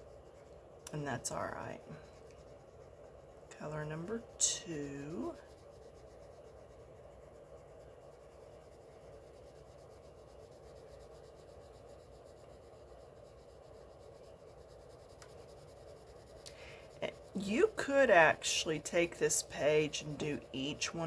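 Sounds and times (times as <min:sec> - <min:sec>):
pencil scratching on paper: 0:00.0 - 0:21.0.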